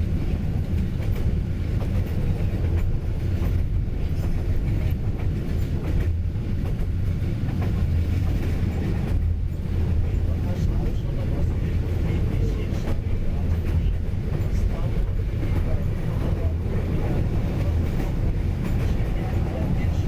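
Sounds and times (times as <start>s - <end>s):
train rumbling on rails: 0.0s - 20.0s.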